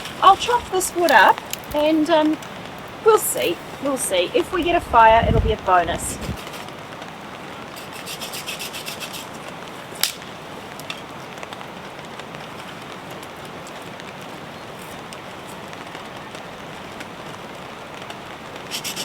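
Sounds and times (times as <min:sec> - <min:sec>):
branch cracking: 0:00.0 - 0:02.5, 0:09.4 - 0:11.6
steady rain: 0:00.0 - 0:19.0
blade cutting through branch: 0:07.8 - 0:10.2, 0:18.7 - 0:19.0.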